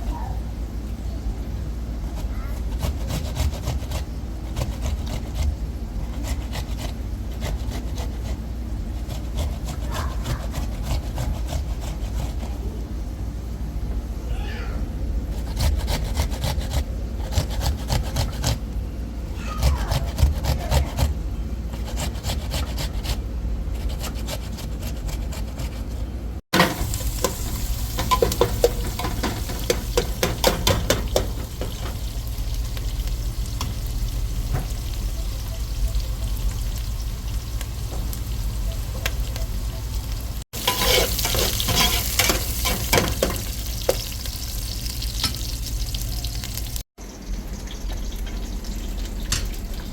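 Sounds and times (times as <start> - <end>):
utensil scraping a pan: 23.8 - 32.0, 40.6 - 44.1
food sizzling in a pan: 26.6 - 49.7.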